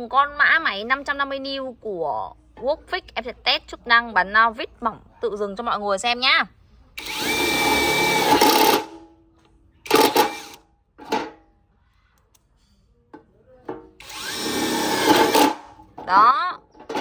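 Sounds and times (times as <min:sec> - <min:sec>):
impact wrench motor whine: 0:07.0 - 0:08.9, 0:14.0 - 0:15.6.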